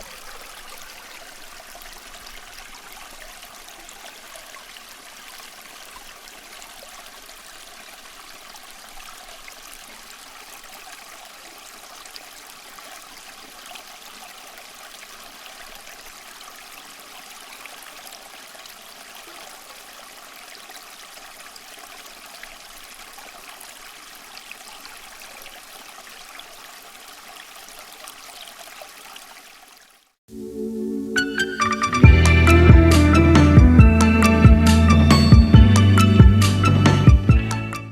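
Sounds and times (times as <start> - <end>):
water trickling in fountain: 0.0 - 30.2.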